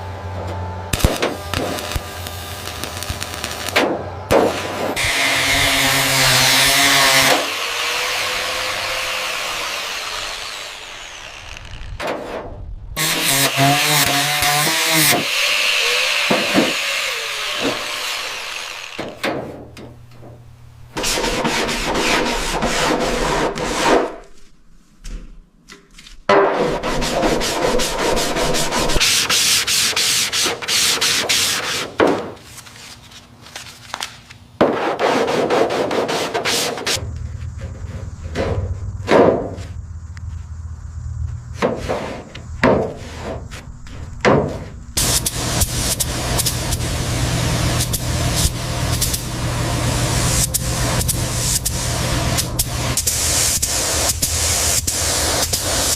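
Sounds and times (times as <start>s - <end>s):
sanding car bodywork: 5.0s - 10.6s, 21.0s - 24.1s, 26.6s - 33.0s, 34.7s - 37.0s, 45.0s - 55.9s.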